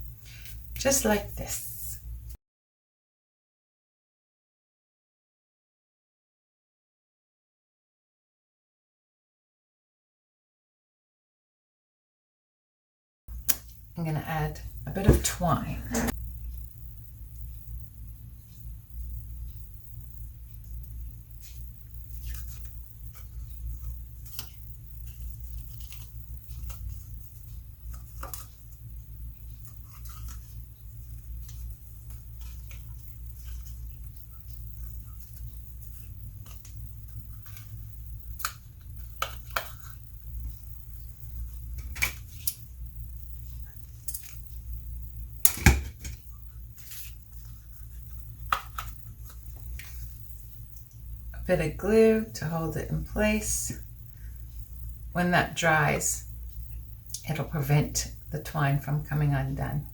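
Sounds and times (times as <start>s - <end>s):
steady low hum: 13.3s - 59.9s.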